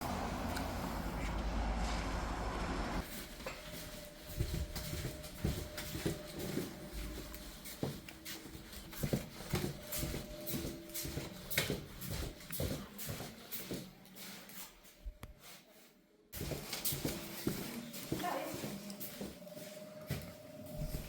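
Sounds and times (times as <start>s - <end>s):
shuffling: 0.1s - 21.0s.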